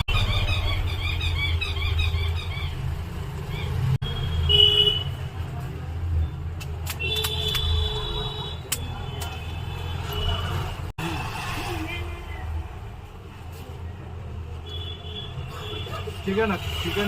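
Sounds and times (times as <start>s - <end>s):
road traffic rumbling: 0.0s - 17.0s
vehicle horns honking: 4.0s - 5.2s, 7.0s - 10.7s.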